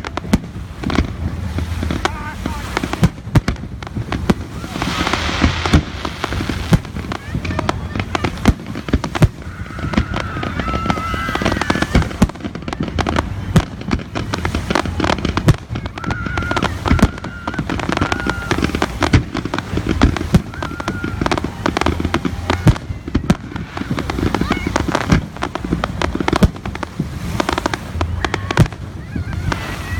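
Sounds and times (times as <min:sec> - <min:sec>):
fireworks bangs and crackles: 0:00.0 - 0:29.9
low rumble: 0:03.7 - 0:08.4.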